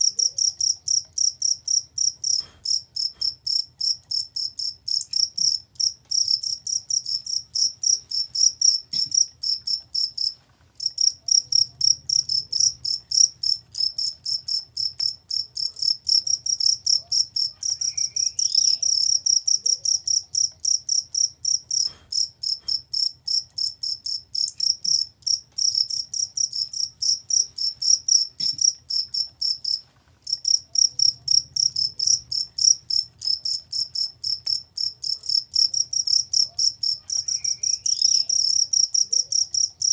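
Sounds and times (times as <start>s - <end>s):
cricket chirping trill: 0.0s - 39.9s.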